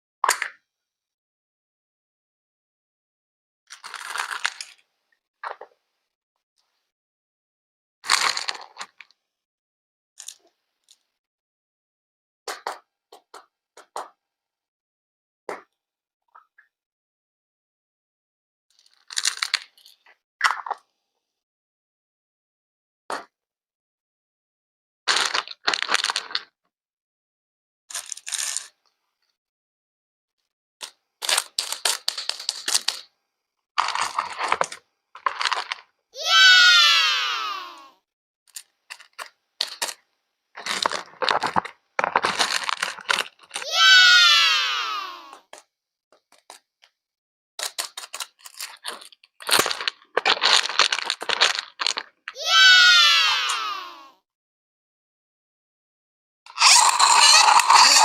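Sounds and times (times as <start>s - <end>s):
crisp crackling and clicking: 30.8s - 33.1s, 33.8s - 35.9s, 38.5s - 40.0s, 40.6s - 43.7s, 47.6s - 52.2s.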